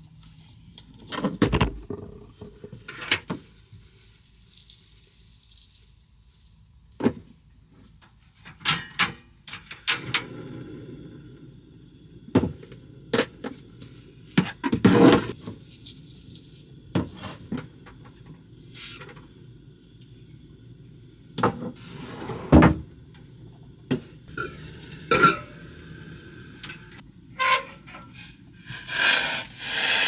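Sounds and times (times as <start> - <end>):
cupboard doors opening and closing: 21.6 - 22.9.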